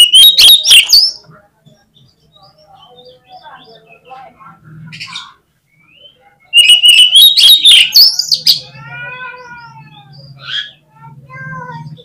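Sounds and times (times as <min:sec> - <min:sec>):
bird whistling and clicking: 0:00.0 - 0:01.2, 0:06.6 - 0:08.4
buzzy bird calls: 0:00.0 - 0:12.0.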